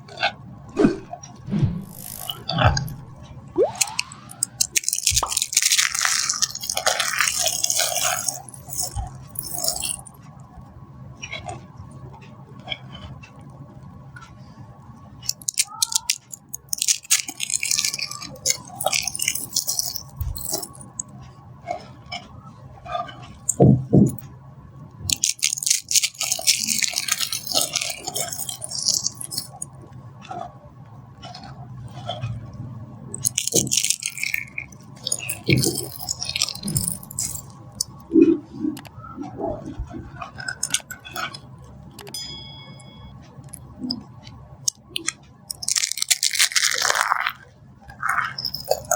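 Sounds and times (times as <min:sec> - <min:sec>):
dry soap crunching: 0:03.8 - 0:10.1, 0:15.2 - 0:21.0, 0:25.0 - 0:29.7, 0:33.2 - 0:37.9, 0:44.7 - 0:48.9.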